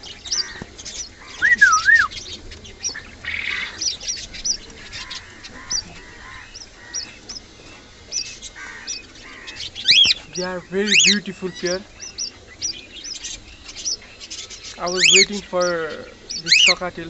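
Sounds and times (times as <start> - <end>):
small birds chirping: 0.0 - 17.0
cockatiel whistled call: 1.4 - 2.2.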